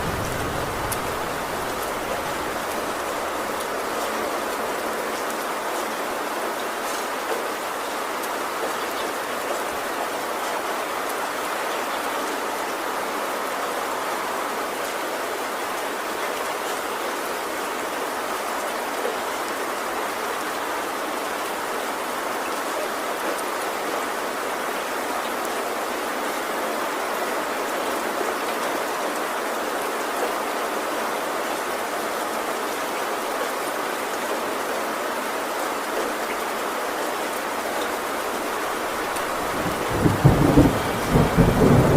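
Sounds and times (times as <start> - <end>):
heavy rain on a tin roof: 0.0 - 41.9.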